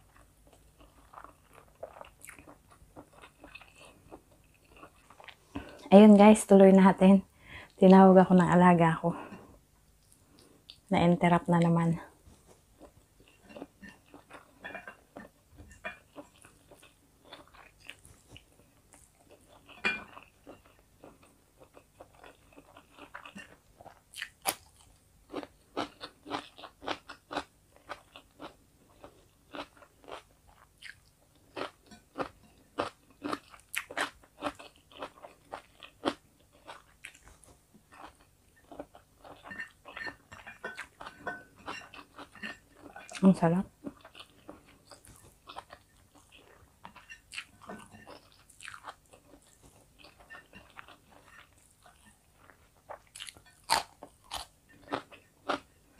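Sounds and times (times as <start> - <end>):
person crunching cucumber: 21.6 - 40.0, 43.9 - 55.7.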